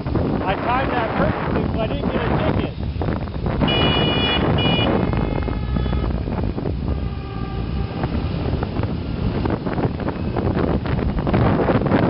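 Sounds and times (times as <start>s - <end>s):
motorcycle riding: 0.0s - 12.0s
wind over microphone: 0.0s - 12.0s
high-pitched vehicle horn beep: 3.6s - 6.2s
low faint horn tone: 3.6s - 9.4s.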